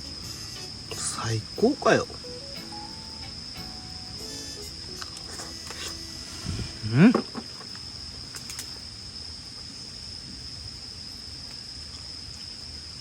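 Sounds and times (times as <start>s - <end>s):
low background hum: 0.0s - 9.6s
insects chirring: 0.0s - 13.0s
faint clicks: 8.3s - 8.8s.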